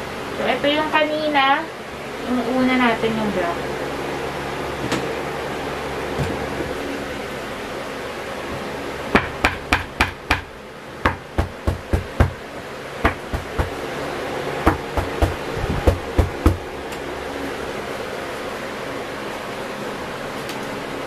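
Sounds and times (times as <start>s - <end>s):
hand thumping panel on wall: 9.2s - 10.5s, 11.1s - 12.4s, 13.0s - 13.8s, 14.7s - 16.7s.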